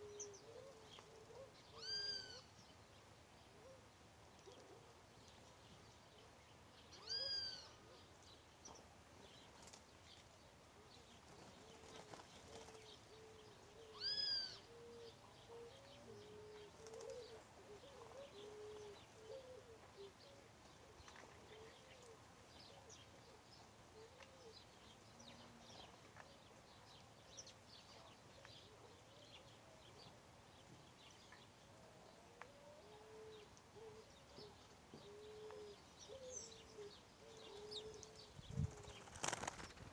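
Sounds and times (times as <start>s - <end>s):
loud arched bird calls: 13.8s - 15.0s.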